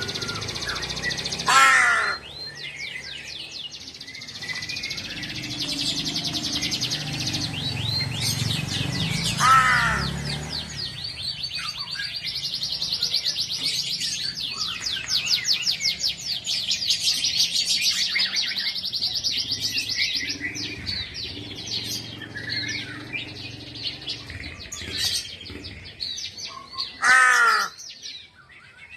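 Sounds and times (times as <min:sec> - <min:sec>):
small birds chirping: 0:00.0 - 0:28.9
crow cawing: 0:01.5 - 0:02.3, 0:09.4 - 0:10.1, 0:27.0 - 0:27.8.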